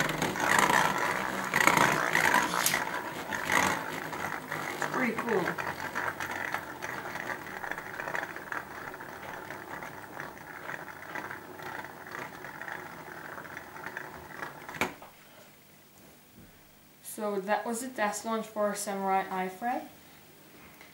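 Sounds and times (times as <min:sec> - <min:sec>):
spinning top grinding rattle: 0:00.0 - 0:15.0.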